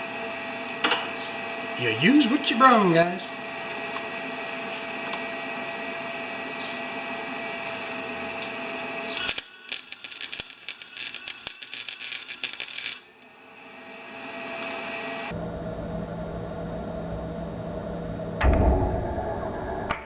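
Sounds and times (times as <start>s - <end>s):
steady hum: 0.0s - 19.9s
welder arc crackling: 7.4s - 13.3s.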